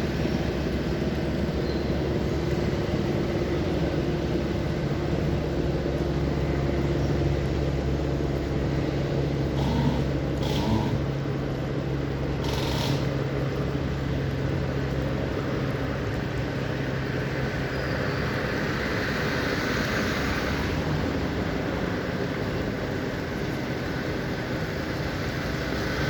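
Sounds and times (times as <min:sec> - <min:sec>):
steady hum: 0:00.0 - 0:14.0
low engine rumble: 0:00.0 - 0:26.0.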